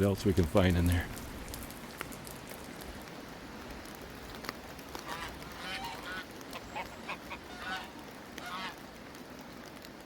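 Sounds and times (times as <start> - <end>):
rain hissing: 0.0 - 10.0
water drips ticking: 0.0 - 10.0
honking bird calls: 5.1 - 8.8.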